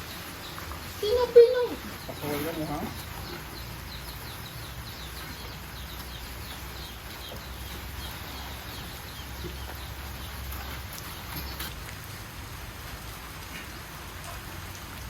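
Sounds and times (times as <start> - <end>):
small bird chirping: 0.0 - 11.7
rain hiss: 0.0 - 15.0.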